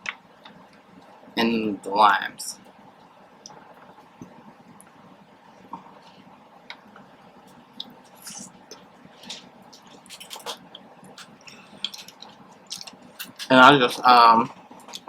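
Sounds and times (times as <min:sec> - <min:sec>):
person eating: 0:07.8 - 0:13.5.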